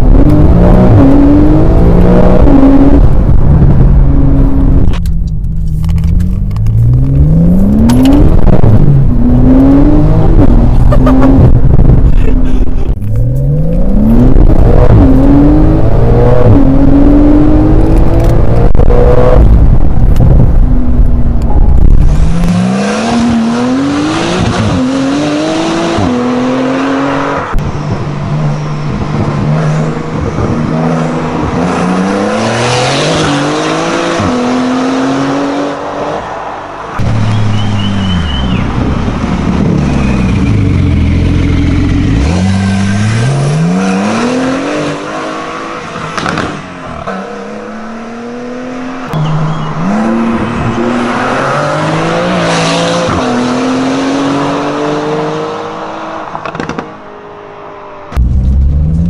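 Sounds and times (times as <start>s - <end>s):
sports car accelerating through gears: 13.0s - 19.8s.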